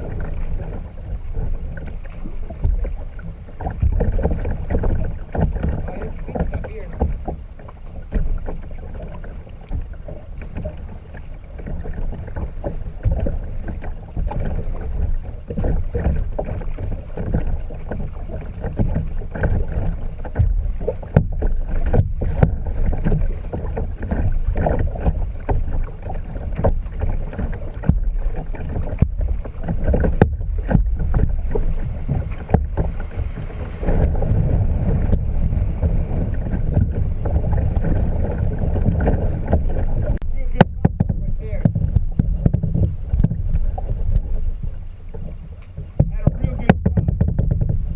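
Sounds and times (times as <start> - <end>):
water splashing against hull: 0.0 - 47.9
wind rumble on microphone: 0.0 - 47.9
sharp knocks: 45.9 - 47.8.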